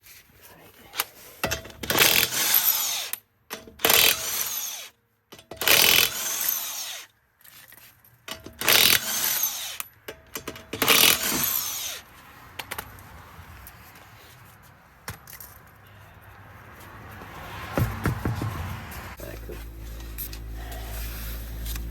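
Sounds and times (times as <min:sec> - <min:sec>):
handheld power tool bursts: 0:01.5 - 0:07.1, 0:08.3 - 0:12.0.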